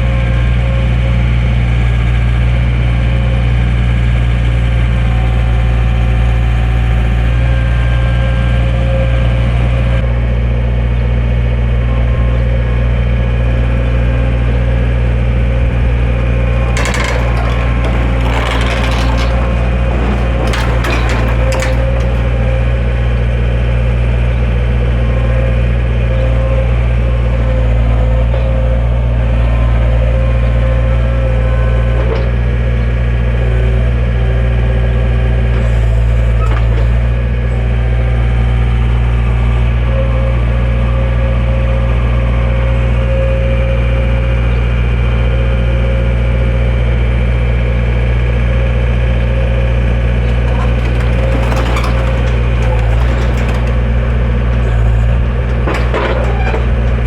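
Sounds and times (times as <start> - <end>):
knocks and clacks: 16.5 - 22.8, 50.2 - 57.0.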